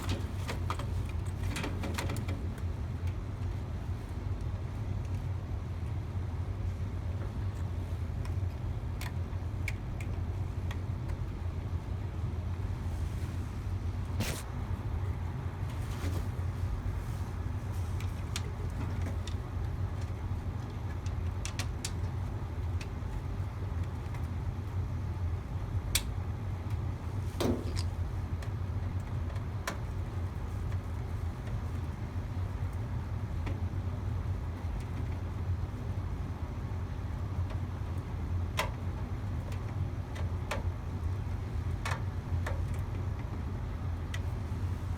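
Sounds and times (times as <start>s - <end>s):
low machine hum: 0.0s - 44.9s
light clicks and taps: 7.2s - 11.4s, 17.8s - 23.0s, 37.5s - 40.7s, 41.3s - 43.4s.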